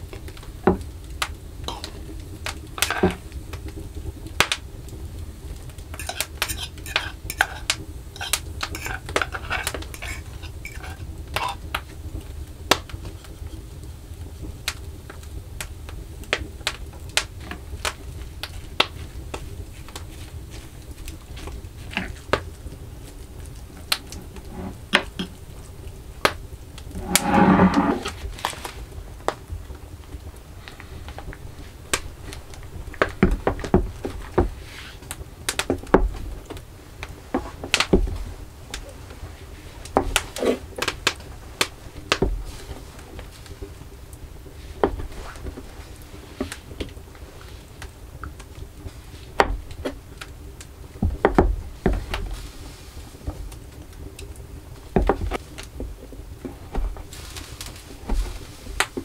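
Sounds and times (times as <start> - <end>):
utensils and dishes clinking: 6.0 - 7.6, 8.2 - 11.6
rasping sound: 26.9 - 28.1.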